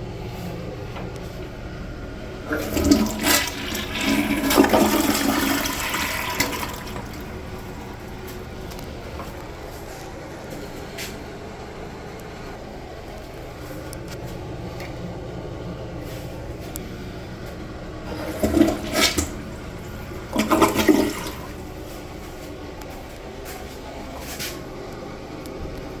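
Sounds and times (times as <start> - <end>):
toilet water running: 1.6 - 10.0, 16.2 - 22.7.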